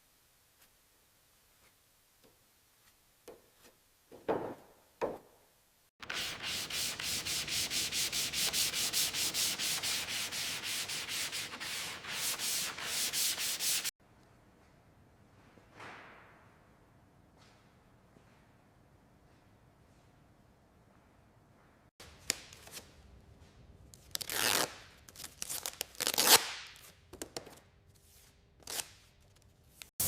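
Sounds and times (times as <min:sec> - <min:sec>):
hand sanding metal: 0:06.0 - 0:13.9.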